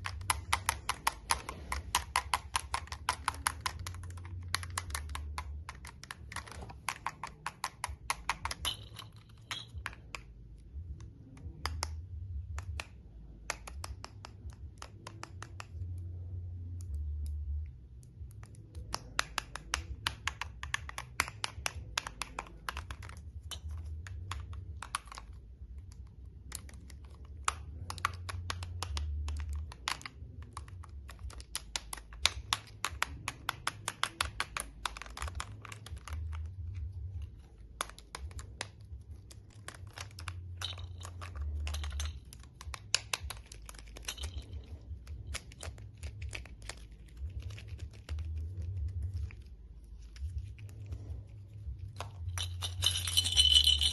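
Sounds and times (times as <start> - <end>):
toys clicking: 0.0 - 10.3.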